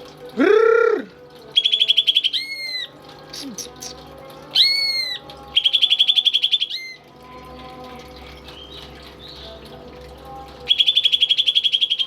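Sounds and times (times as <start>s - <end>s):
bird singing whistles and trills: 1.5s - 7.0s, 8.5s - 9.6s, 10.7s - 12.0s.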